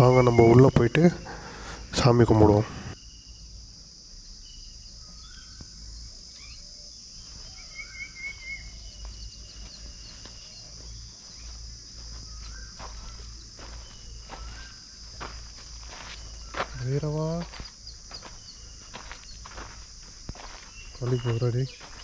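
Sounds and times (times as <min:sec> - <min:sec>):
bird calls: 0:00.0 - 0:03.4, 0:04.5 - 0:19.8, 0:20.4 - 0:22.0
high-pitched insect chirring: 0:00.0 - 0:22.0.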